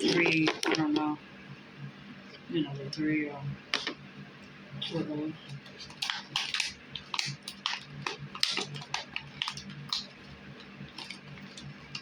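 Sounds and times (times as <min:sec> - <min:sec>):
hands handling packaging: 0:00.0 - 0:01.0, 0:05.6 - 0:12.0.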